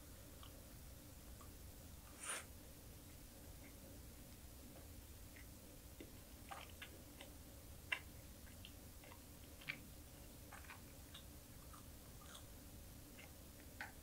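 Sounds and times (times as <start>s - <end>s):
chewing mouth clicks: 5.3s - 9.9s, 10.5s - 12.5s.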